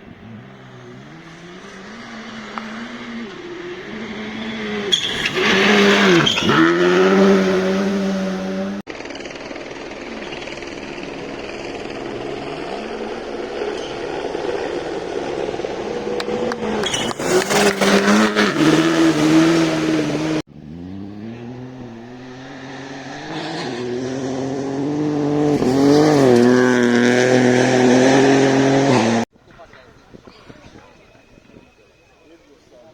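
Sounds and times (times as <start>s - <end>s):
rally car engine passing: 0.0s - 29.3s
engine cracks: 8.8s - 20.4s.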